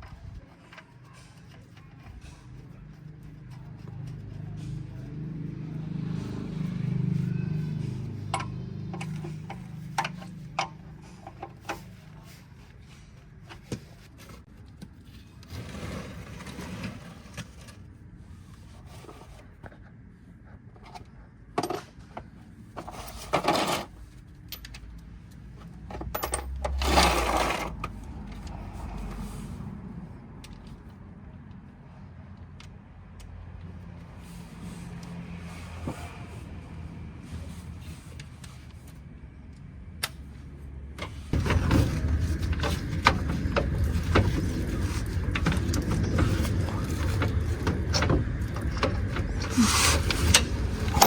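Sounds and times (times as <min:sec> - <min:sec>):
metal tools clinking and scraping: 0:22.8 - 0:24.9, 0:25.9 - 0:27.9, 0:43.8 - 0:51.0.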